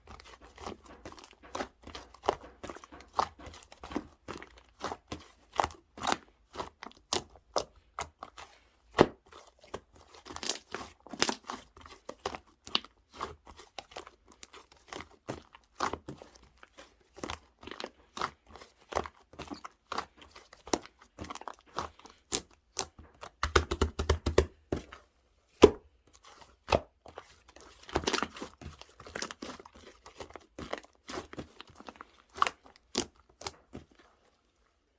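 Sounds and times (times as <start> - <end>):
slime clicking and popping: 21.7 - 24.5.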